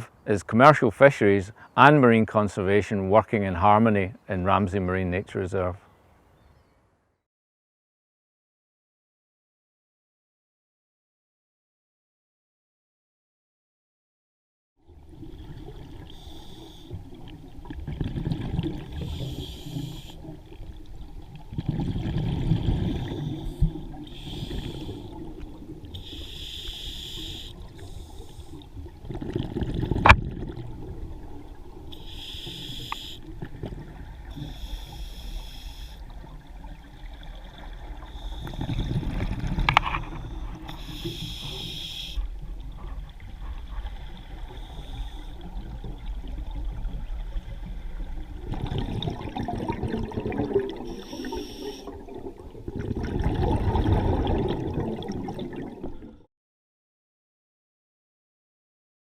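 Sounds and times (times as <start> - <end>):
exhaled air bubbling: 14.8 - 56.3
regulator inhalation hiss: 16.0 - 17.0, 19.0 - 20.3, 23.0 - 25.3, 25.9 - 28.6, 31.9 - 33.3, 34.3 - 36.2, 38.0 - 38.8, 40.0 - 42.3, 44.5 - 45.4, 50.8 - 52.0.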